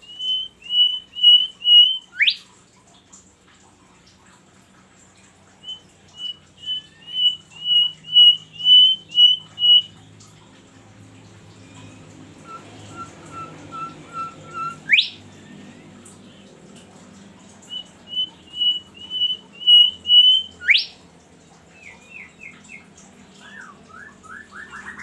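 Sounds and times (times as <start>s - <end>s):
songbird whistling: 0.0s - 2.5s, 5.6s - 10.0s, 11.6s - 15.8s, 17.6s - 21.0s, 21.8s - 25.0s.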